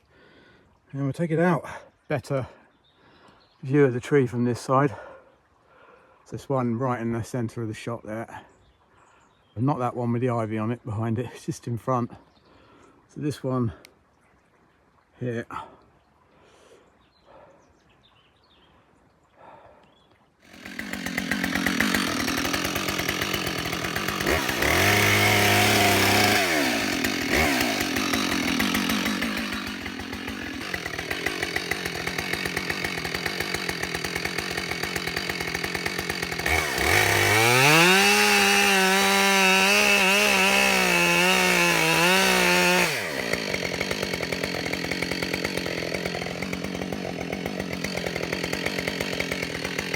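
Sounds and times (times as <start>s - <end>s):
chainsaw sawing into tree trunk: 20.4s - 49.9s.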